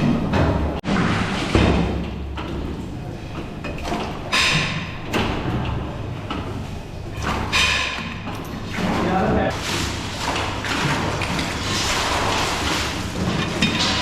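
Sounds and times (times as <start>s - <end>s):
metal clanks and knocks: 0.0s - 9.2s, 10.2s - 14.0s.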